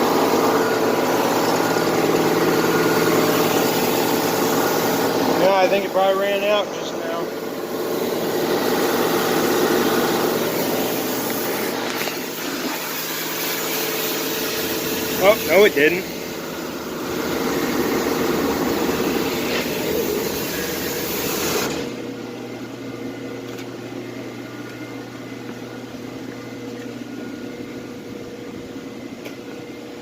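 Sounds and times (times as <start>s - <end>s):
pressure washer rushing: 0.0s - 22.0s.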